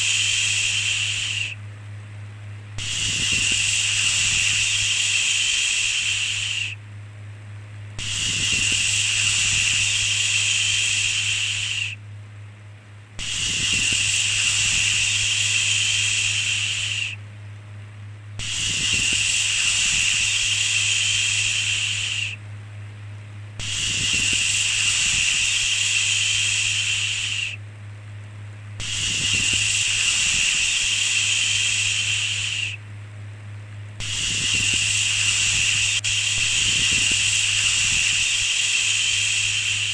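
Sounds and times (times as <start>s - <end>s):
person shushing: 0.0s - 1.6s.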